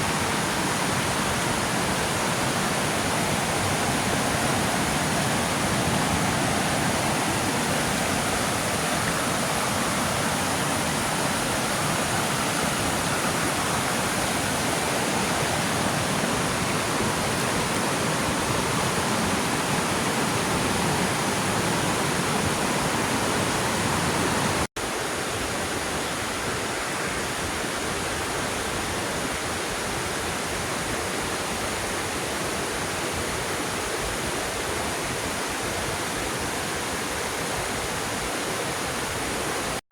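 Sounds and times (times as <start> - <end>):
waterfall rushing: 0.0 - 39.8.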